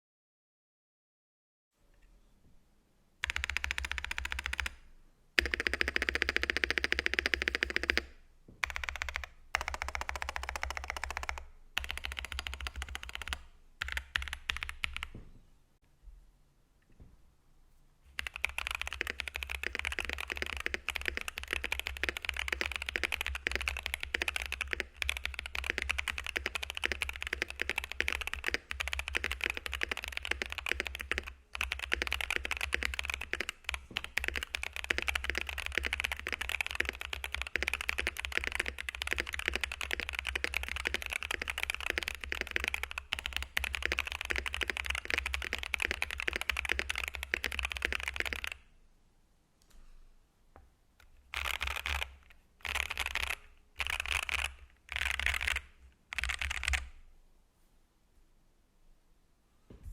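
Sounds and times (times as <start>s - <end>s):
mechanical keyboard typing: 3.2s - 4.8s, 5.4s - 15.2s, 18.2s - 48.6s, 51.3s - 56.9s.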